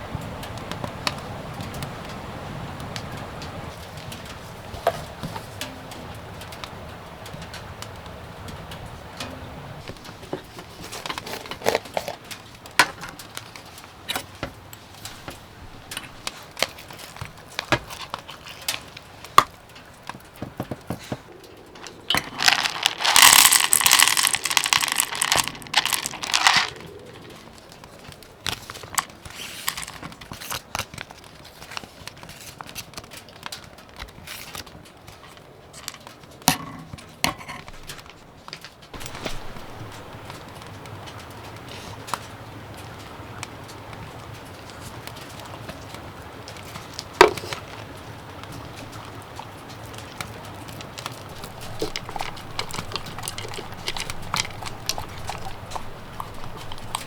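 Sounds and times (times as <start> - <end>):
crinkling and rustling handling: 2.9 - 7.7, 9.8 - 57.0
harsh crinkle or tear: 21.8 - 28.0.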